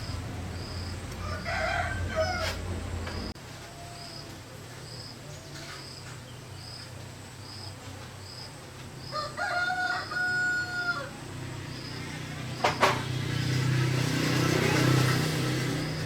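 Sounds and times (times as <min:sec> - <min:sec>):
rooster crowing: 0:00.6 - 0:03.2, 0:09.0 - 0:11.4.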